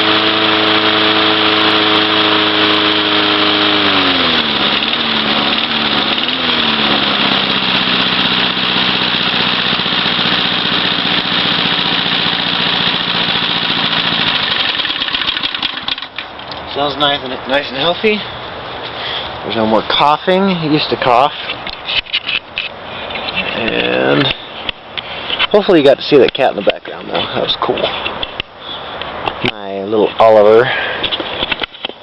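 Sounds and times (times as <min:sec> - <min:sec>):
small engine running: 0:00.0 - 0:16.2.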